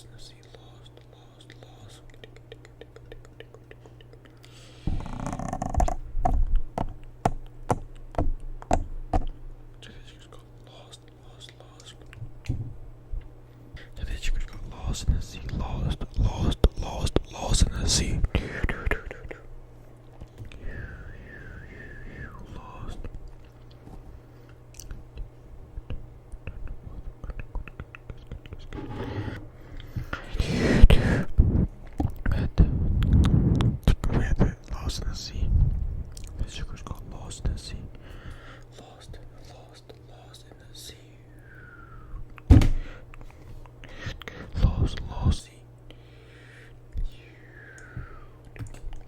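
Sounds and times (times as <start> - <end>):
faint steady hum: 0.0 - 49.0
small irregular clicks and taps: 5.3 - 9.4.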